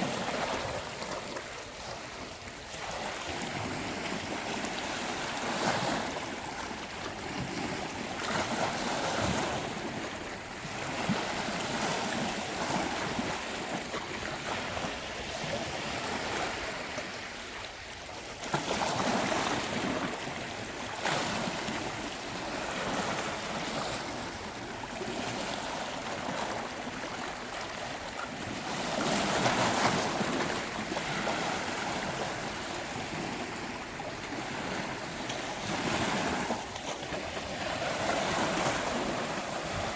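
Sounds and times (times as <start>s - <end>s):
sea waves breaking on beach: 0.0s - 39.9s.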